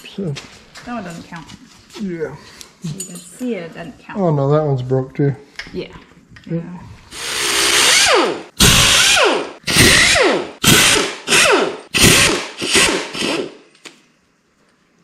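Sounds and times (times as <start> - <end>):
power tool whine bursts: 7.2 - 13.6.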